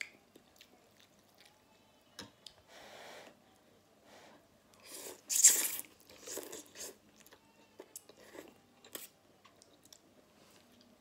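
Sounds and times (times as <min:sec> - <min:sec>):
chewing sounds: 0:00.0 - 0:01.6.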